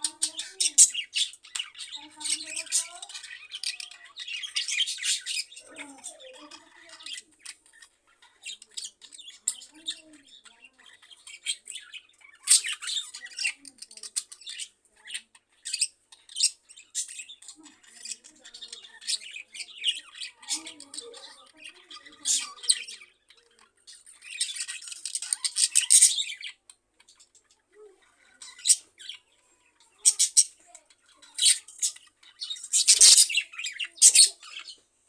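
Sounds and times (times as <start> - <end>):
budgerigars chattering: 0.0 - 34.8.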